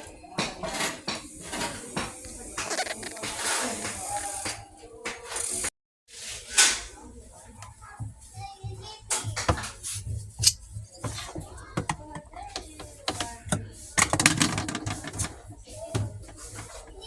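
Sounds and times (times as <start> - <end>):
sharp clicks and knocks: 7.6 - 17.0.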